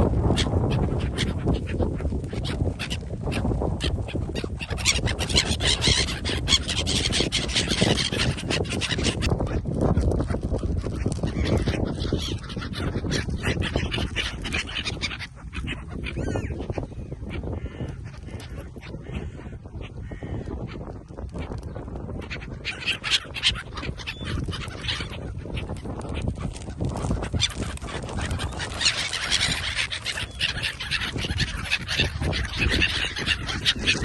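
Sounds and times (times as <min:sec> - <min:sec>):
ducks quacking: 0:22.7 - 0:34.0
geese honking: 0:27.2 - 0:34.0.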